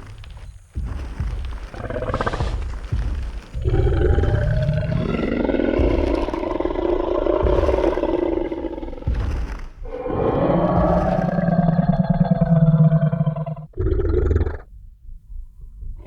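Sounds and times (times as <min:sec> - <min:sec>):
heavy thud: 0:00.7 - 0:11.8
deep rough dinosaur roar: 0:01.7 - 0:02.9, 0:03.6 - 0:14.7.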